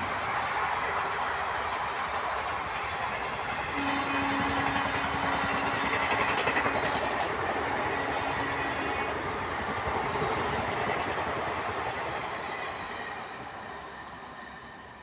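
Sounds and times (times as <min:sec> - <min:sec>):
train wheel and rail noise: 0:00.0 - 0:15.0.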